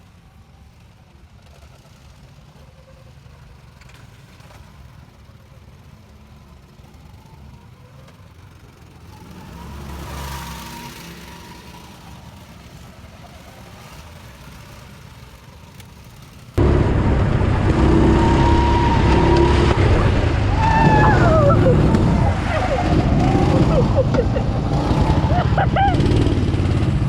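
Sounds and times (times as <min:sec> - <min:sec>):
engine running close by: 0:00.2 - 0:27.0
car engine passing: 0:08.6 - 0:27.0.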